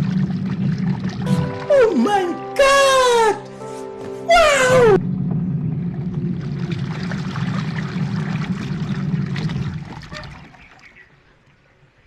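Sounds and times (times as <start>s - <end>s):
washing machine motor humming: 4.5s - 10.1s
laundry sloshing in water: 5.8s - 11.7s.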